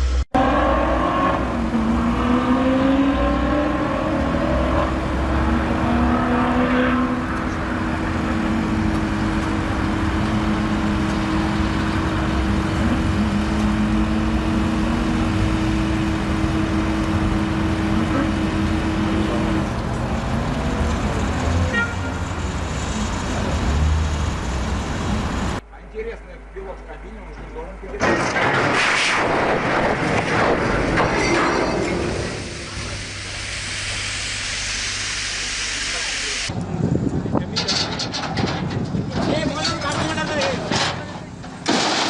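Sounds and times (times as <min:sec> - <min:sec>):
vehicle engine revving: 0:00.0 - 0:25.6.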